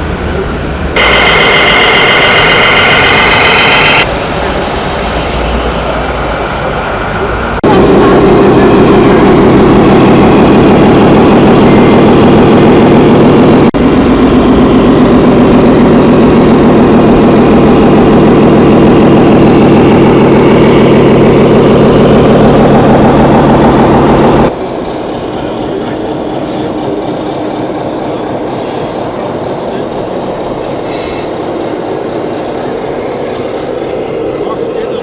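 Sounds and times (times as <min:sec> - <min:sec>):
toy truck diesel engine sound: 0:01.0 - 0:04.1.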